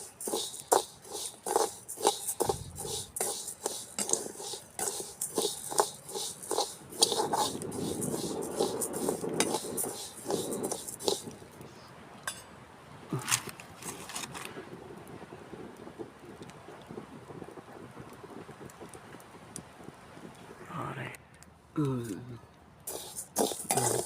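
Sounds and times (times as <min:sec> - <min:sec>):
rice grains rustling: 0:00.0 - 0:11.4, 0:22.9 - 0:24.0
spoon clatter: 0:00.0 - 0:11.4, 0:22.9 - 0:24.0
spoon scraping rice in metal pan: 0:00.0 - 0:11.4, 0:22.9 - 0:24.0.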